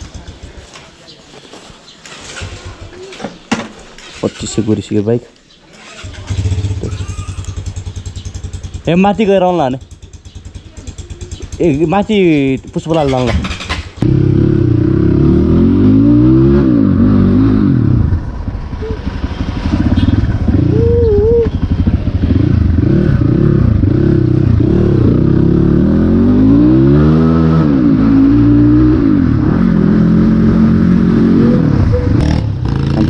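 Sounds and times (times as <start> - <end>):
dirt bike engine revving: 5.8 - 12.1, 13.0 - 33.0.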